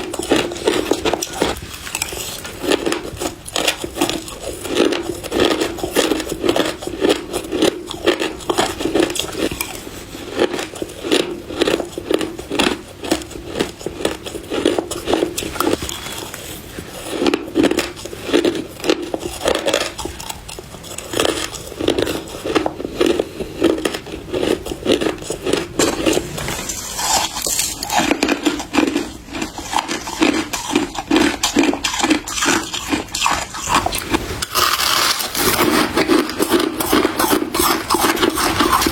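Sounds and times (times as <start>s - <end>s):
ice being crunched: 33.6s - 38.9s.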